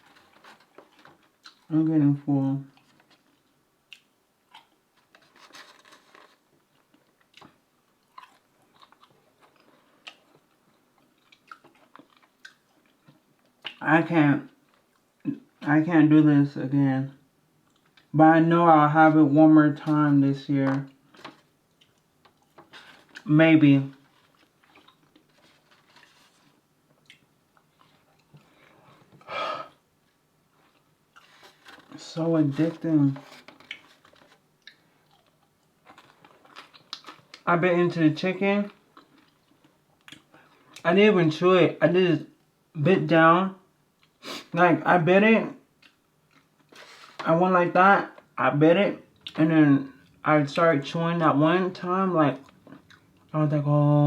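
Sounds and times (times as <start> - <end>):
person chewing food: 2.7 - 13.8, 24.0 - 29.2, 33.5 - 37.4, 52.4 - 53.3.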